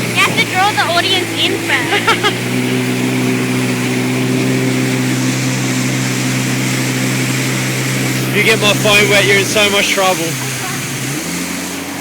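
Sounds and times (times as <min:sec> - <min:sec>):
jet ski engine running: 0:00.0 - 0:12.0
wind and water hiss: 0:00.0 - 0:12.0.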